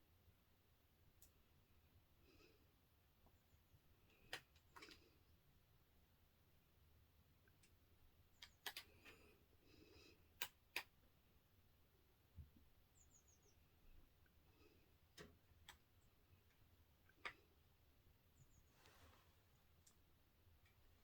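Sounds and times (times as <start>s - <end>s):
faint sharp clicks: 1.2s - 1.4s, 4.1s - 5.1s, 8.4s - 9.3s, 10.4s - 11.0s, 15.1s - 17.5s, 19.7s - 20.8s.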